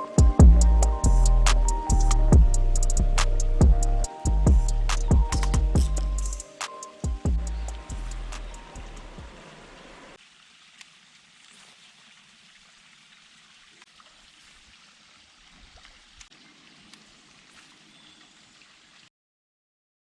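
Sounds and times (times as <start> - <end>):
faint hiss of water: 6.3 - 19.1.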